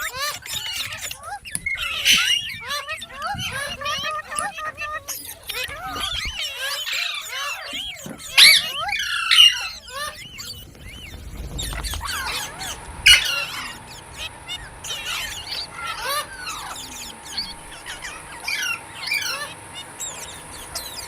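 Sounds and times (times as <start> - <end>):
parakeets chattering and squawking: 0.0 - 21.0.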